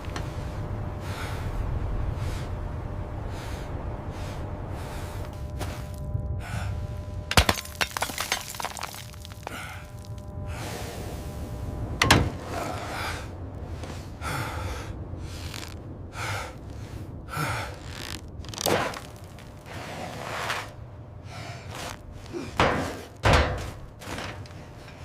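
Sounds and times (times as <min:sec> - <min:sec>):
heavy thunks and knocks: 0:22.6 - 0:24.4.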